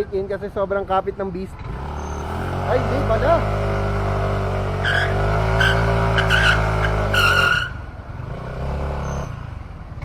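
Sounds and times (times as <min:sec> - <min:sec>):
motorcycle engine revving: 0:01.5 - 0:10.0
tyre squealing chirps: 0:02.0 - 0:02.4, 0:04.8 - 0:07.8.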